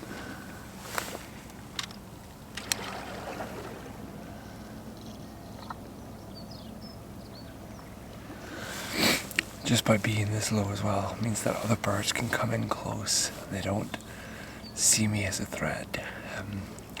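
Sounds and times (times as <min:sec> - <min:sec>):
water lapping at shore: 0:00.0 - 0:06.0, 0:07.6 - 0:14.9
faint high bird calls: 0:04.2 - 0:09.8.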